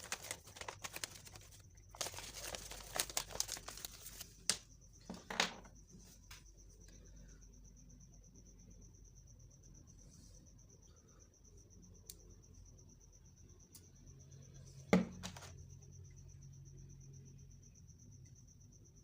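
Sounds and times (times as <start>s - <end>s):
packaging crinkling and rustling: 0.0s - 4.6s.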